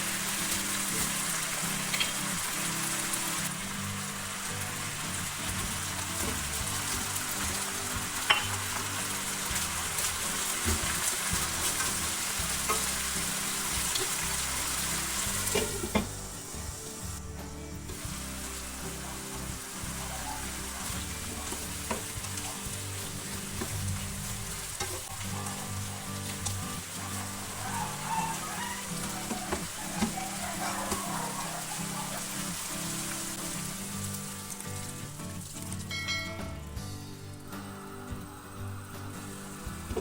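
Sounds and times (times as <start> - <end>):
food sizzling in a pan: 0.0 - 40.0
utensil clicking against pan: 1.9 - 2.3.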